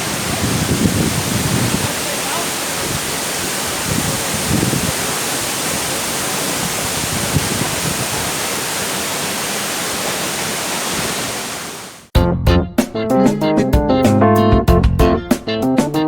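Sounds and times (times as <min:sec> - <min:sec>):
waterfall rushing: 0:00.0 - 0:12.1.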